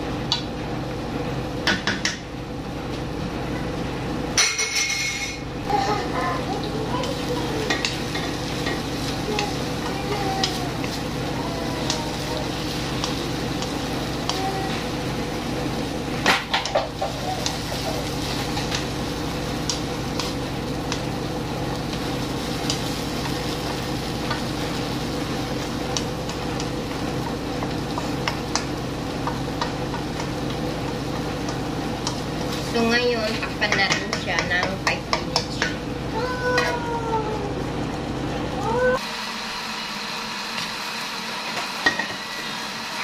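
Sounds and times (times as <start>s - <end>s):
steady low hum: 0.0s - 39.0s
chicken and tomato sizzling in a pan: 5.6s - 37.7s
wooden spatula clicking against pan: 27.6s - 32.6s.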